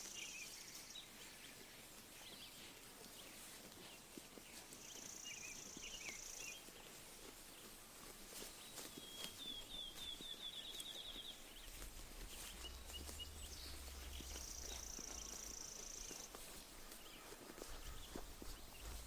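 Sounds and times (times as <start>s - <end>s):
sheep chewing grass: 0.0s - 19.0s
small birds chirping: 0.0s - 19.0s
rapid bird trill: 11.2s - 16.4s.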